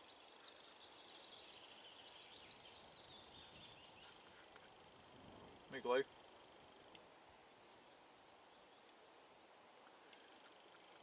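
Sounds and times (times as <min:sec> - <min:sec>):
faint birdsong chirps: 0:00.0 - 0:11.0.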